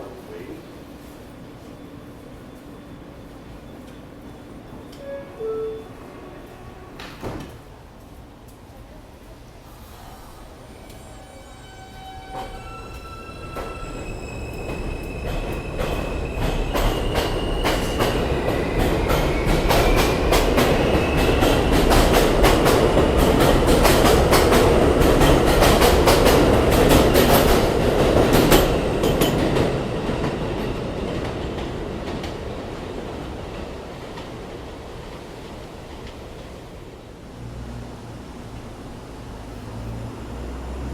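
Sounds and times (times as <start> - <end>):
train whining tones: 1.0 - 7.5, 9.7 - 30.7
train wheels clattering: 12.3 - 34.4.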